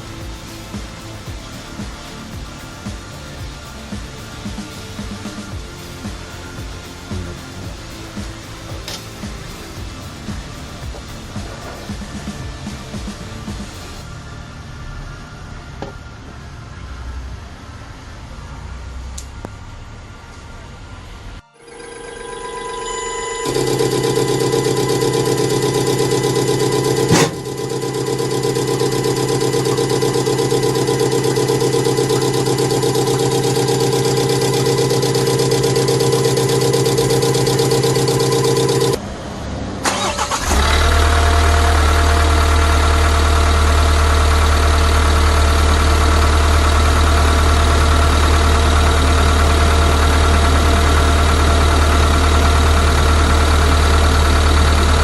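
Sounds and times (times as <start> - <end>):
diesel engine droning: 22.9 - 55.0.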